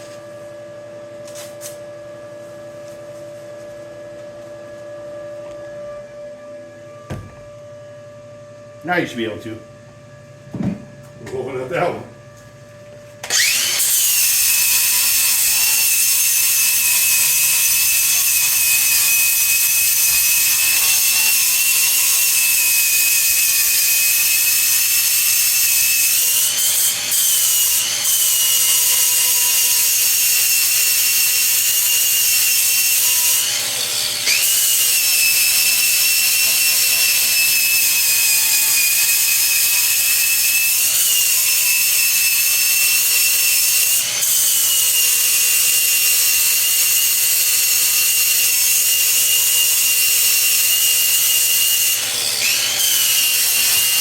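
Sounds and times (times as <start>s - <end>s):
angle grinder grinding steel: 13.2s - 54.0s.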